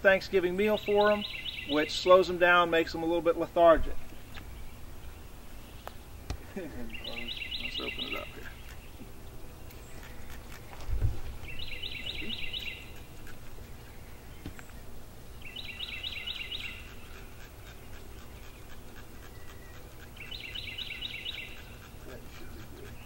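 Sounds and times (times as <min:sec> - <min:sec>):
outdoor background noise: 0:00.0 - 0:23.0
songbird singing: 0:00.0 - 0:23.0.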